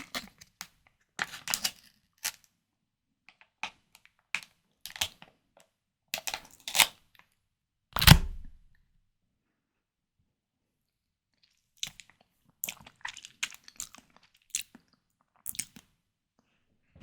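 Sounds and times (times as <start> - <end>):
crackles and clicks of food handling: 0.0 - 2.6, 3.3 - 7.3, 11.4 - 16.5.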